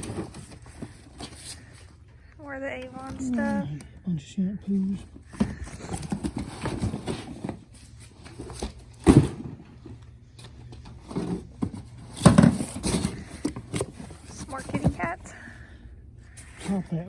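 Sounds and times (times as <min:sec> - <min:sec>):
knocks and clunks of items handled: 0:00.0 - 0:02.0, 0:05.0 - 0:15.5.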